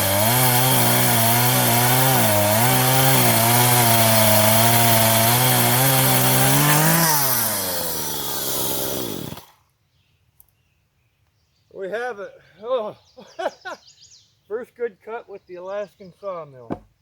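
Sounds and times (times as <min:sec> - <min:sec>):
chainsaw cutting a log: 0:00.0 - 0:09.6.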